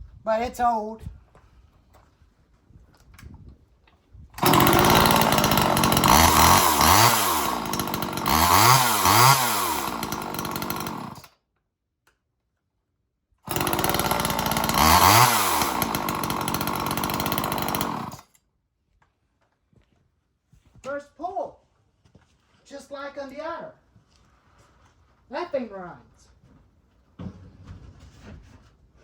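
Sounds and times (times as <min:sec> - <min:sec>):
two-stroke chainsaw revving: 0:04.4 - 0:11.3, 0:13.5 - 0:18.2.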